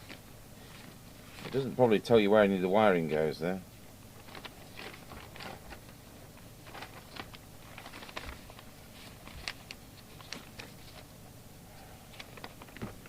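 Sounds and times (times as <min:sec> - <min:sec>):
faint handling clicks and rustles: 0:00.0 - 0:02.0, 0:04.0 - 0:11.2, 0:12.1 - 0:13.0
low background hiss: 0:00.0 - 0:13.0.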